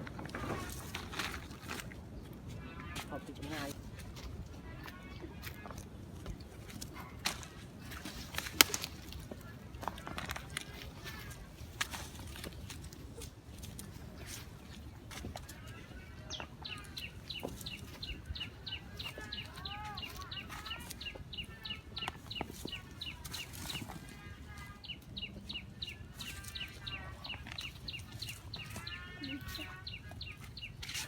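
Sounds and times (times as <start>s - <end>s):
birds chirping: 0.0s - 31.0s
low curved bird calls: 6.4s - 31.0s.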